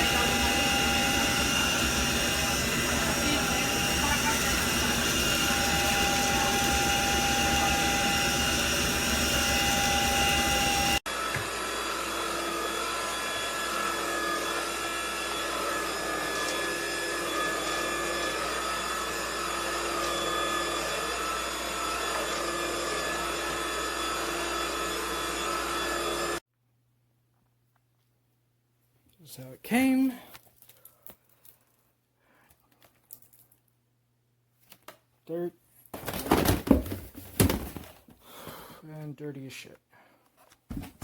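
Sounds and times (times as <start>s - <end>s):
stick vacuum cleaner running: 0.0s - 26.4s.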